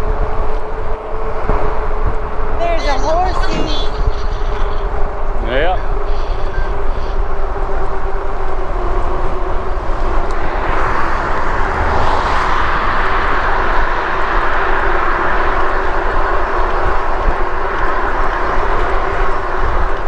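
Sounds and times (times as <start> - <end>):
electric hub motor whine: 0.0 - 20.0
wind rushing over microphone: 0.0 - 20.0.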